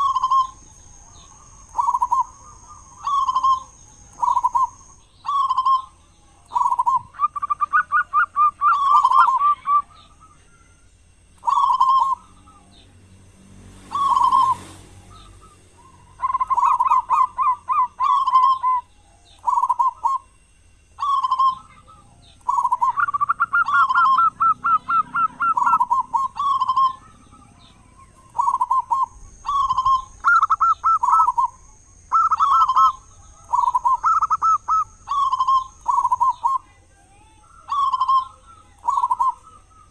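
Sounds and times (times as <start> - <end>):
dove cooing and trilling: 0.0 - 12.9, 13.8 - 39.9.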